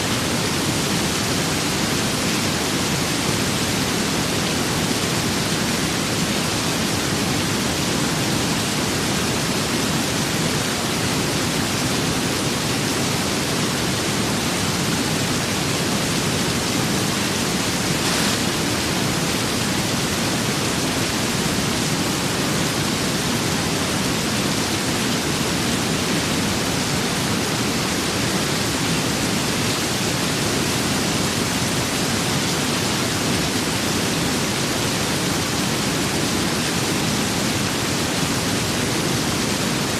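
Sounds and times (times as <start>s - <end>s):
steady rain with wind: 0.0s - 39.9s.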